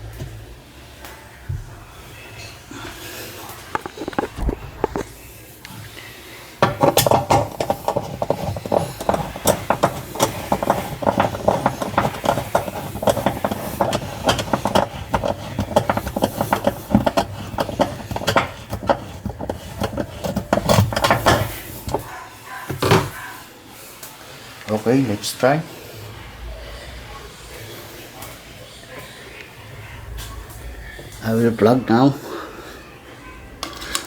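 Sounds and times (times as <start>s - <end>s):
rapid metallic clicking and clatter: 6.6s - 22.2s.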